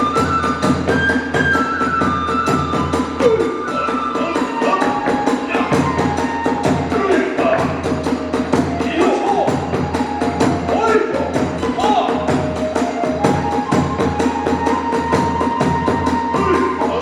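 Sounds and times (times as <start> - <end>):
bamboo flute long notes: 0.0 - 17.0
drum beat: 0.0 - 17.0.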